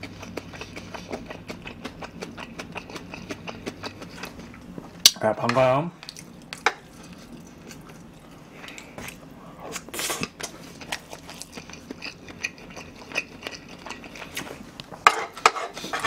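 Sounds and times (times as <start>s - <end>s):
wet chewing mouth clicks: 0.0s - 4.6s.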